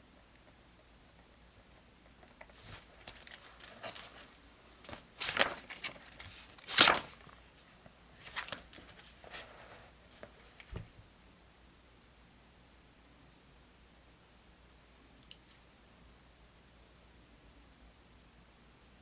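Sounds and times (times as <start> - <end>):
paper and stickers rustling: 2.2 - 10.8.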